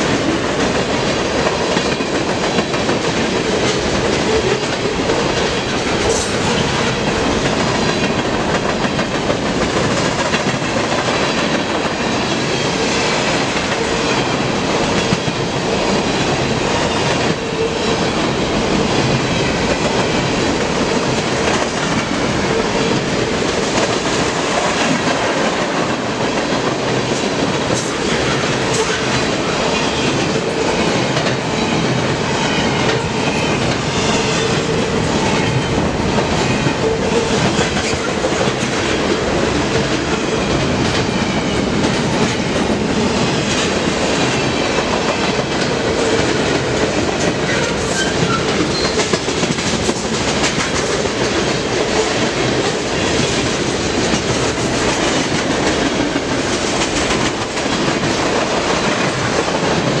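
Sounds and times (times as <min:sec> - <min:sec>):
train cars rumbling past: 0:00.0 - 1:00.0
wheels clacking over rail joints: 0:13.3 - 1:00.0.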